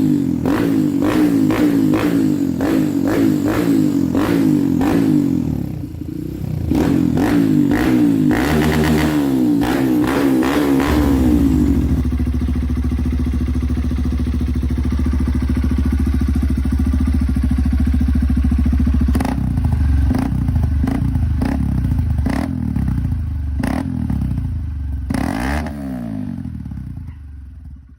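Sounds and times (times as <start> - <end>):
motorcycle engine idling and revving: 0.0 - 27.9.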